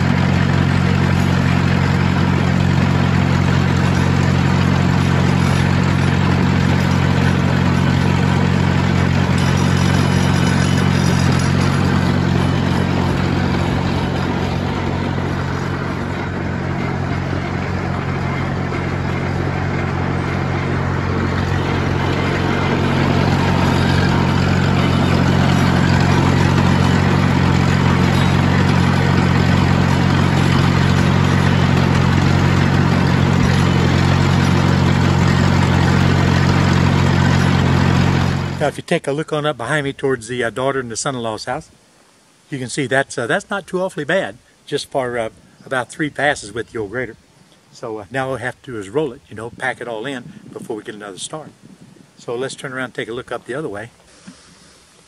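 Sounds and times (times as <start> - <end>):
motor grader engine running: 0.0 - 40.0, 45.2 - 52.4.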